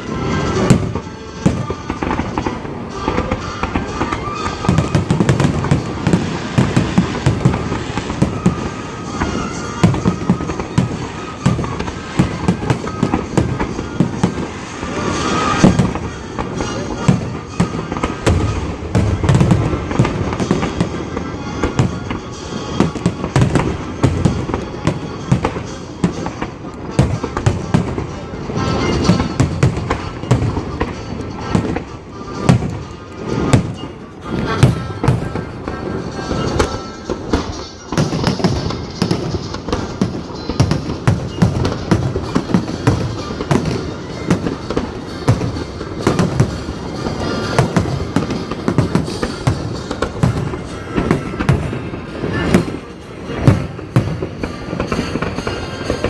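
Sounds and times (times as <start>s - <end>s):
fireworks bangs and crackles: 0.0s - 56.0s
music playing: 0.0s - 56.0s.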